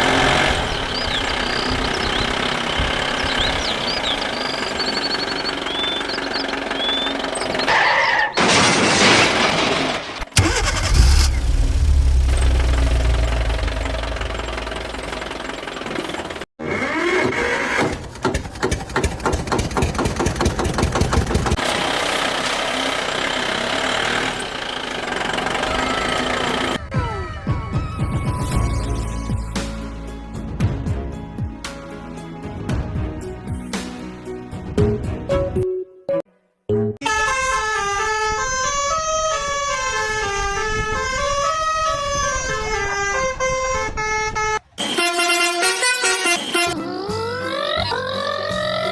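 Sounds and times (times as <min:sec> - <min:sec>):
cartoon engine chugging: 0:10.4 - 0:16.4
electronic horn-like tune: 0:44.4 - 0:46.8.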